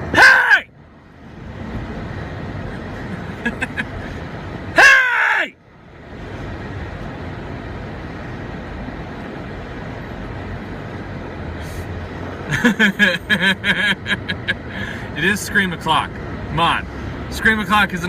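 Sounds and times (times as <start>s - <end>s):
traffic and road noise: 0.0s - 18.0s
man laughing: 2.7s - 4.1s, 12.5s - 14.8s.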